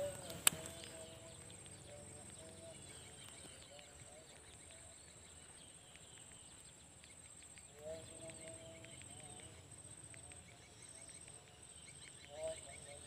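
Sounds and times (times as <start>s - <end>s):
insect buzz: 0.0s - 3.7s
distant animal call: 0.0s - 4.2s.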